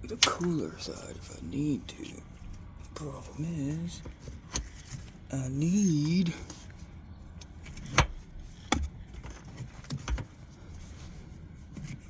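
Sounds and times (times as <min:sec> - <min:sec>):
sharp clicks and knocks: 0:07.4 - 0:10.3.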